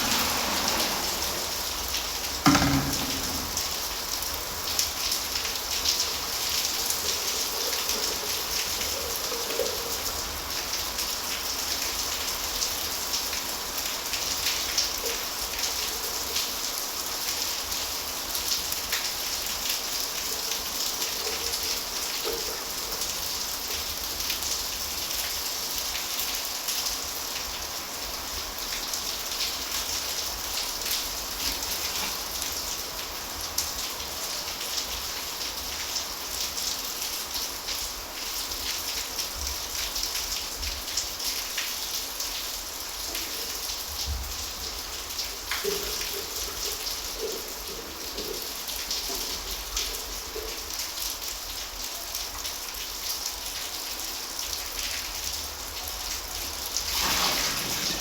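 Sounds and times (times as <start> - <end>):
heavy thump: 2.5 - 3.7.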